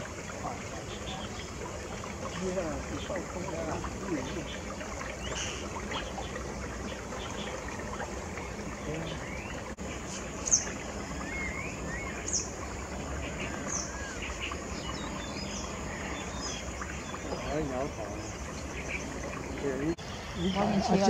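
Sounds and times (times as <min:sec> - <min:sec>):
background hiss: 0:00.0 - 0:21.0
birds chirping: 0:00.0 - 0:21.0
bird whistled glides: 0:08.7 - 0:12.5, 0:13.1 - 0:21.0.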